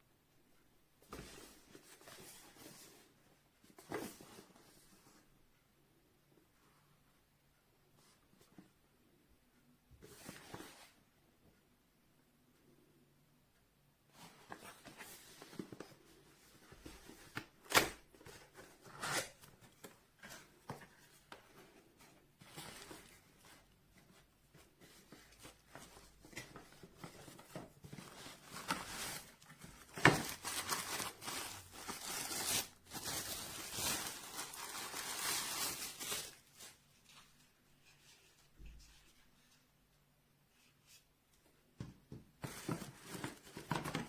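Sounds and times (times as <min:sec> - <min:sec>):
packaging rustling and tearing: 0:25.5 - 0:36.8.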